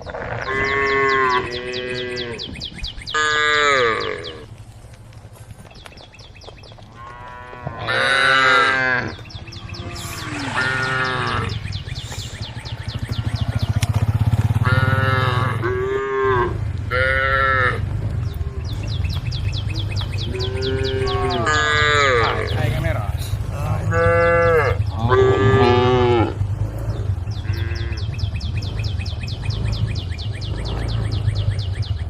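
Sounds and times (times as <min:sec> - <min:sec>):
cows mooing: 0:00.0 - 0:04.6, 0:06.9 - 0:31.6
steady low rumble: 0:08.5 - 0:32.0.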